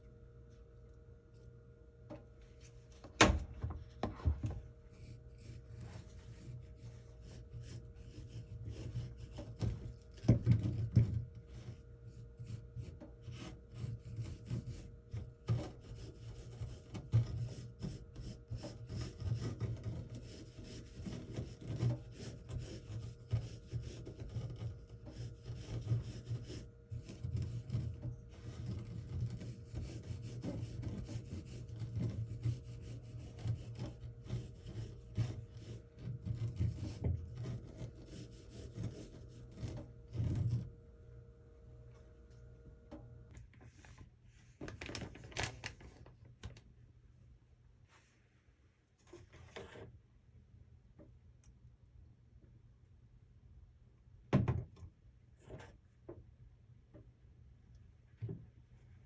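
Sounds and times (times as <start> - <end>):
cucumbers scraped on wooden board: 12.8 - 40.7.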